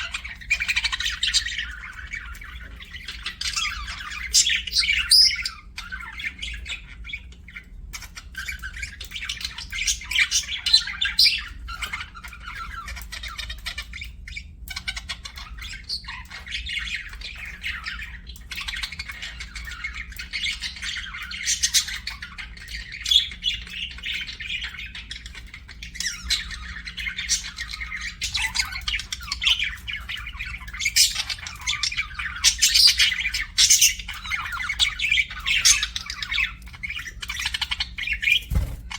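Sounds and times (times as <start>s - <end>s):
budgerigars chattering: 8.0s - 38.9s.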